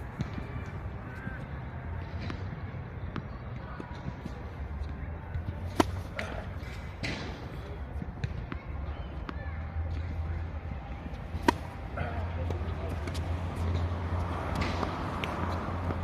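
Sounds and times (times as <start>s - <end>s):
tennis ball knocks: 5.6s - 7.4s, 11.4s - 13.2s.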